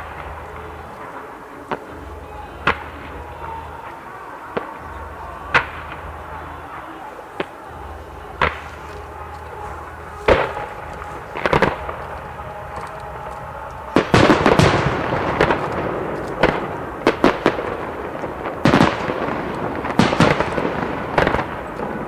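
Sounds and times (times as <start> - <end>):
firework shells bursting: 0.0 - 22.0.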